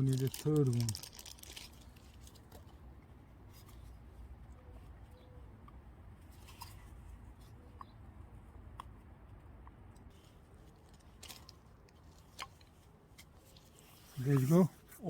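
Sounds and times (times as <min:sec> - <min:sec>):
small clicks and rubbing: 0:00.0 - 0:04.0, 0:08.8 - 0:14.7.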